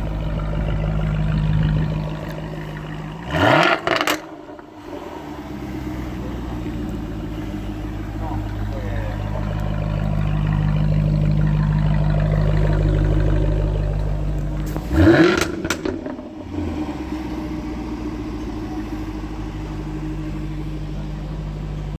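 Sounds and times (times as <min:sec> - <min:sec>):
exhaust pops: 0:00.0 - 0:05.0, 0:06.4 - 0:16.6
car engine idling: 0:00.0 - 0:21.9
engine throttle blip: 0:06.9 - 0:16.6.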